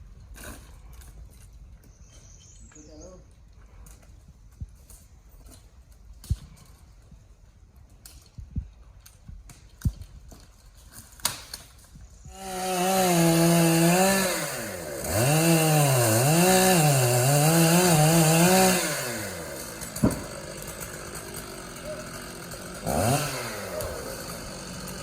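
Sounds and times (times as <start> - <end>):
chainsaw revving and cutting: 12.3 - 25.0.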